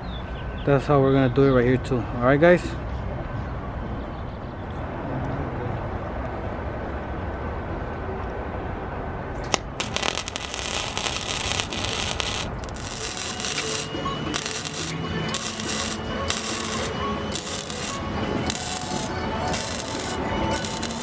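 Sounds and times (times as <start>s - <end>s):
crackling welding arc: 9.4s - 21.0s
welder click: 9.5s - 21.0s.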